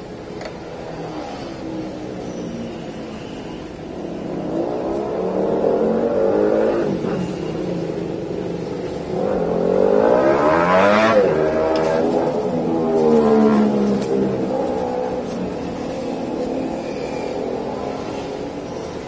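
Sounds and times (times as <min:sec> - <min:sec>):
motorcycle engine revving: 0:03.8 - 0:19.0.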